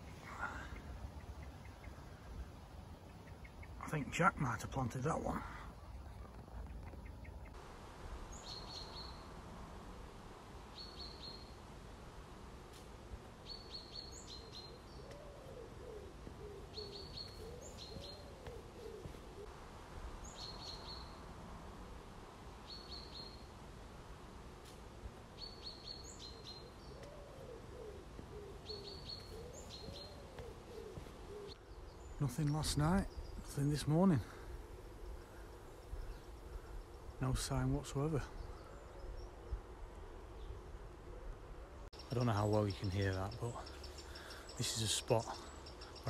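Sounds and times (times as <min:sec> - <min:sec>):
low rising and falling bird notes: 0:13.4 - 0:23.7, 0:25.3 - 0:46.0.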